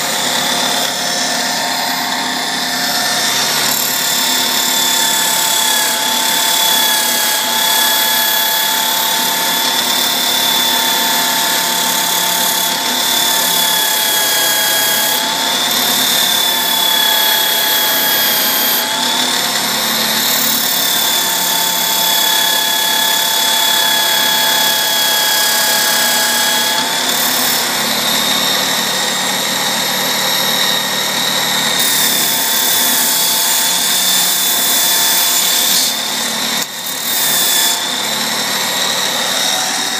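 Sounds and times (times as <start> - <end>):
motor running with high whine: 0.0 - 39.9.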